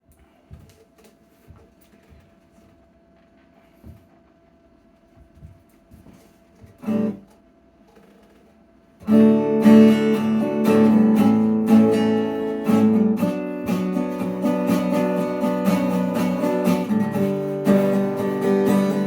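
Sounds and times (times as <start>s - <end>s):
acoustic guitar strumming: 6.8s - 7.3s, 9.0s - 19.0s.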